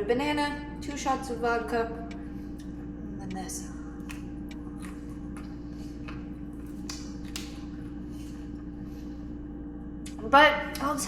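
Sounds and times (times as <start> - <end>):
steady hum: 0.0 - 11.0
person chewing food: 3.8 - 8.7.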